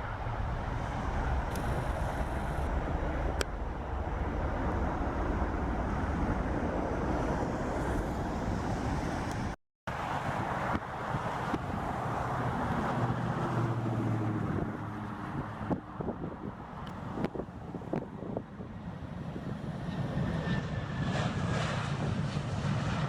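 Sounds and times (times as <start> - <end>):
low steady hum: 0.0 - 7.1
wind buffeting microphone: 0.0 - 9.6, 10.2 - 22.6
jet engines roaring: 0.0 - 23.0.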